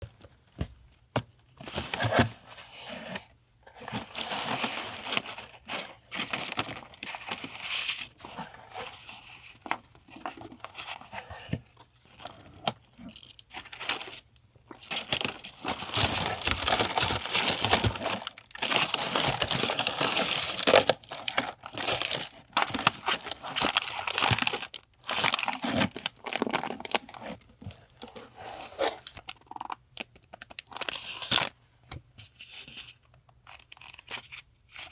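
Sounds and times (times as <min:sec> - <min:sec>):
paper crinkling and tearing: 0:14.8 - 0:27.4.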